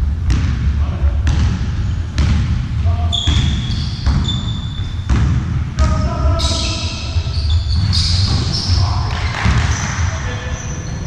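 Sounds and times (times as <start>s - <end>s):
ball bouncing on indoor court: 0.0s - 11.0s
shoes squeaking on floor: 3.1s - 5.1s, 6.4s - 11.0s.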